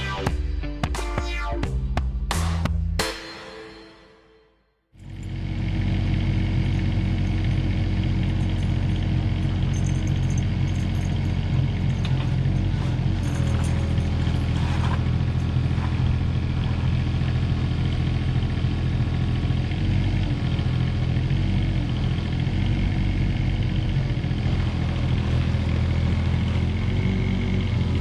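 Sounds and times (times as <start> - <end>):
mini excavator diesel engine: 5.0 - 28.0.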